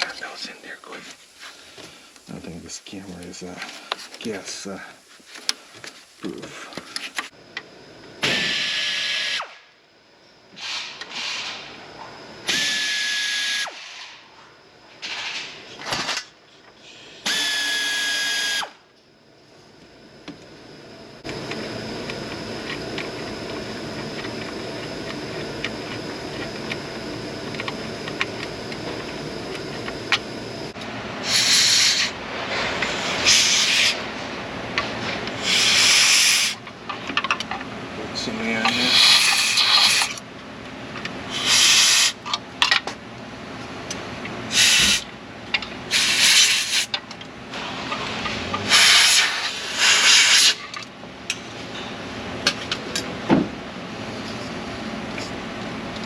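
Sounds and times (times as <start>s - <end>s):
cordless drill whining: 17.3s - 18.7s.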